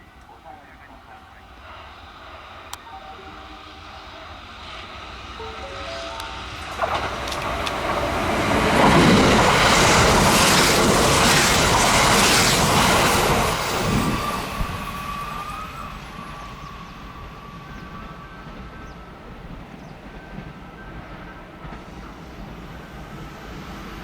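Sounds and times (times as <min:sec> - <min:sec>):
electric train passing at speed: 0:00.0 - 0:24.0.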